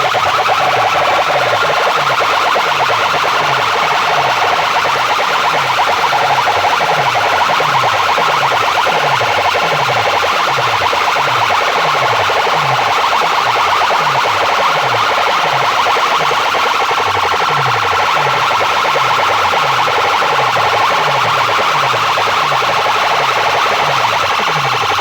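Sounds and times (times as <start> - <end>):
buzzing siren-like electronic track: 0.0 - 25.0.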